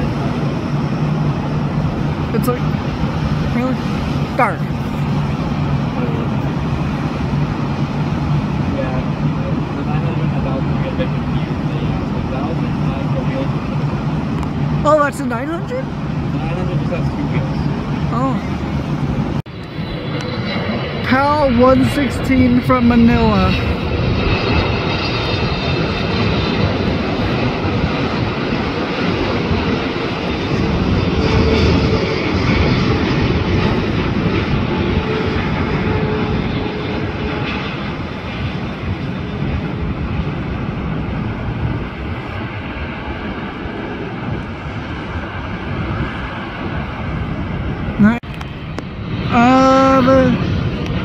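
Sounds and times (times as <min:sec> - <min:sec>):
jet airliner engines rushing: 0:00.0 - 0:51.0.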